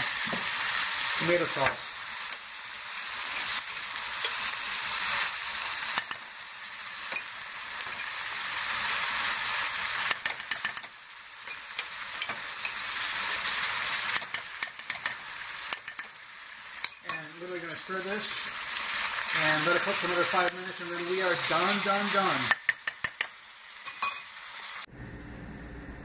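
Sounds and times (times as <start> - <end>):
food sizzling in oil: 0.0 - 24.9
spoon clicking against pot: 14.1 - 16.1, 22.5 - 23.3.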